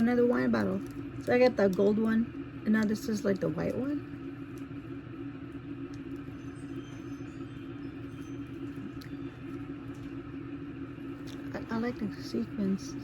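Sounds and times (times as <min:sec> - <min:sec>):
low droning hum: 0:00.0 - 0:13.0.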